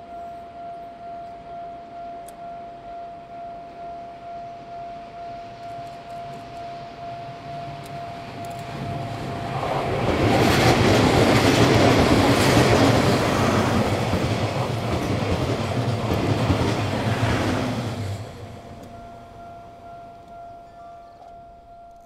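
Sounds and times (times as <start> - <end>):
level crossing warning bell: 0.0 - 22.0
train wheels clattering: 5.5 - 22.0.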